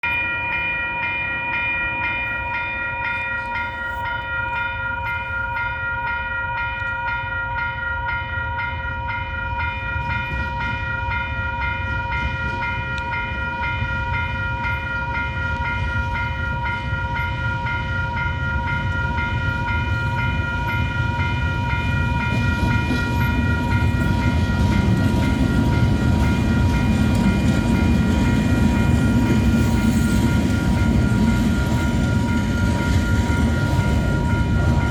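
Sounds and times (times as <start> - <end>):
level crossing warning bell: 0.0 - 34.9
approaching train rumble: 8.7 - 34.9.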